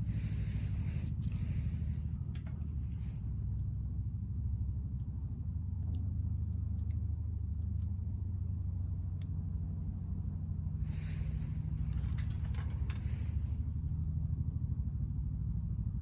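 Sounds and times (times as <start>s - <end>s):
wood fire crackling: 0.0s - 3.6s, 10.8s - 14.1s
low rumble: 0.0s - 6.4s, 7.2s - 16.0s.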